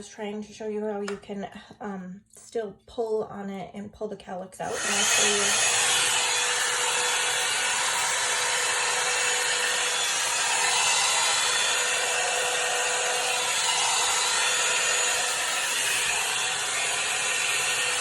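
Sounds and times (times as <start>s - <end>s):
hair dryer brush blowing: 4.7s - 18.0s.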